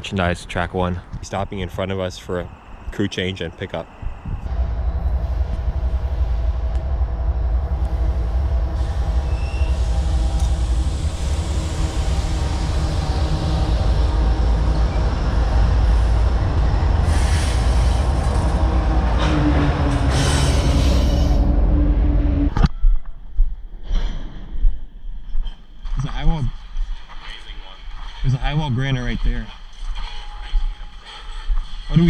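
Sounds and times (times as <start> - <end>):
rumble of rolling train cars: 4.0 - 22.6
diesel locomotive engine running: 4.5 - 22.5
sharp high-pitched screech: 8.8 - 10.5, 19.1 - 21.6.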